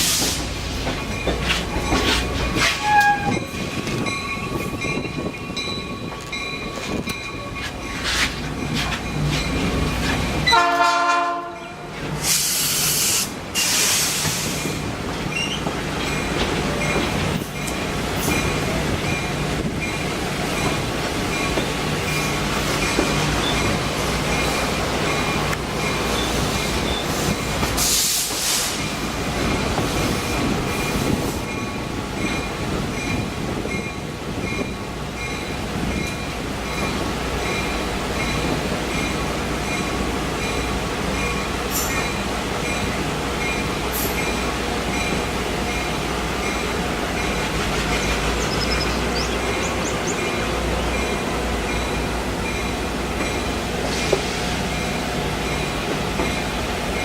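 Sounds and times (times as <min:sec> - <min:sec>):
train rumbling: 0:00.0 - 0:57.0
high wheel squeals: 0:01.8 - 0:03.6, 0:26.1 - 0:27.4
train horn blast: 0:02.7 - 0:03.4, 0:10.5 - 0:11.9.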